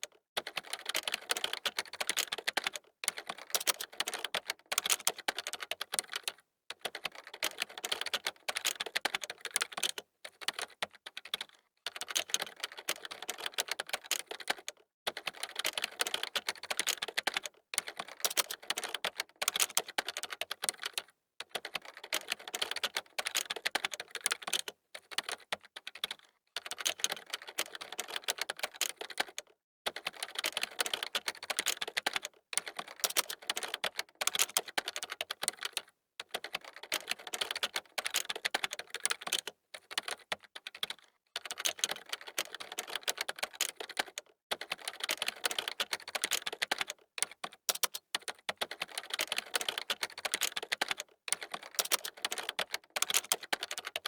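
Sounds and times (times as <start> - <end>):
keyboard key clicks: 47.7 - 48.3.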